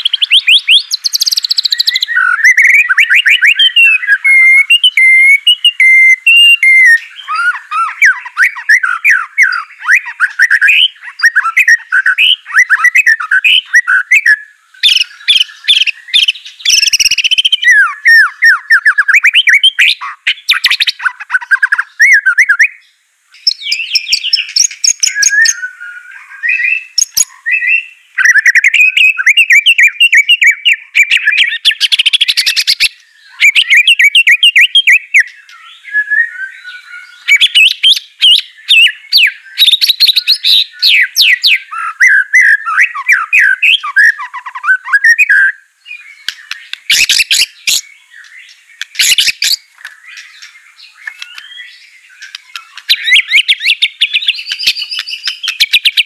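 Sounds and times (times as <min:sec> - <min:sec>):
bird singing chirps and trills: 0:00.0 - 0:56.0.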